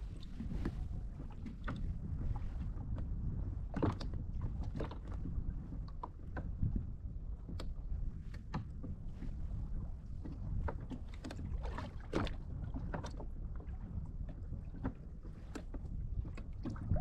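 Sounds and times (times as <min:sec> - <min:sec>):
water lapping against kayak hull: 0:00.0 - 0:17.0
wind rumble on microphone: 0:00.0 - 0:17.0.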